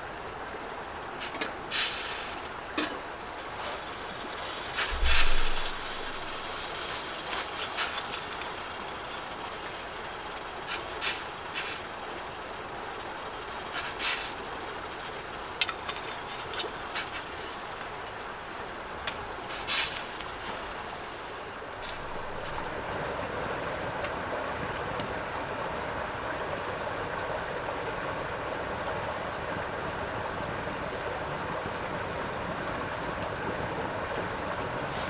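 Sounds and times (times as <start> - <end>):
wood fire crackling: 0.0 - 22.9, 32.8 - 35.0.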